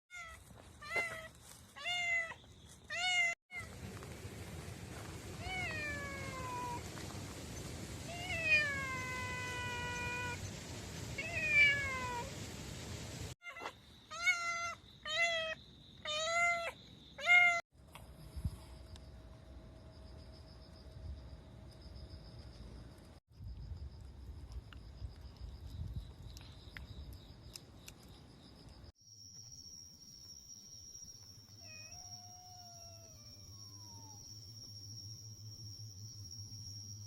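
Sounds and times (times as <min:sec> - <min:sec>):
steady hiss: 0:03.7 - 0:13.4.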